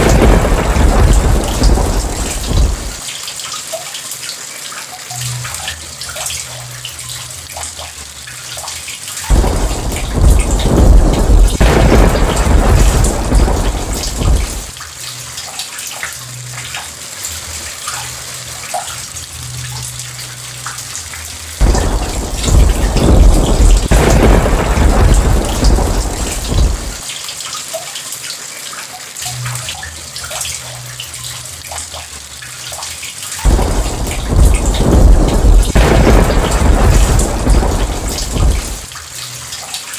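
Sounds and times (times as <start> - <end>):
thunder rumbling: 0.0 - 3.0, 9.3 - 14.8, 21.6 - 27.0, 33.4 - 38.9
steady rain: 0.0 - 39.9.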